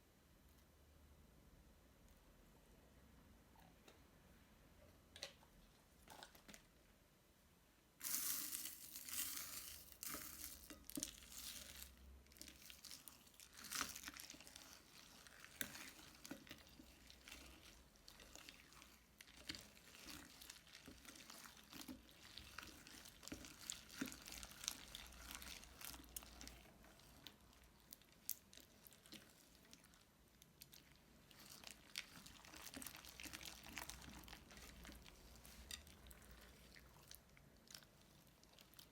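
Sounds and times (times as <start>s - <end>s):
crunchy slime crackling: 8.0s - 38.9s.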